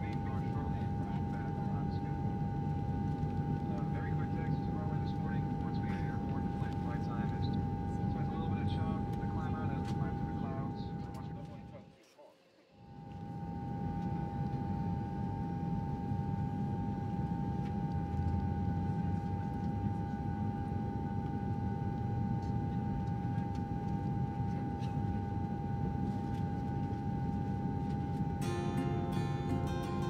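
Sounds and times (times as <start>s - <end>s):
engine and air flow drone: 0.0s - 11.6s, 13.0s - 30.0s
high whine: 13.0s - 30.0s.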